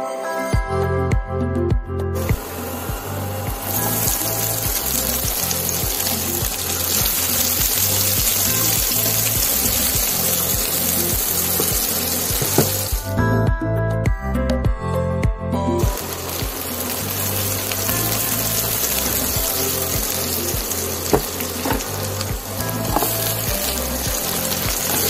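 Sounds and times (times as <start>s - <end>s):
background music with steady beat: 0.0s - 25.0s
onions sizzling in hot oil: 2.2s - 13.1s, 15.8s - 25.0s.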